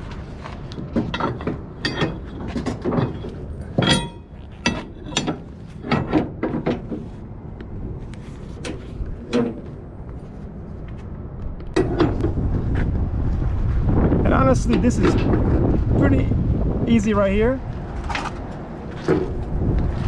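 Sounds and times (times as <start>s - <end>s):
metallic clanks of winch bar: 1.0s - 7.0s.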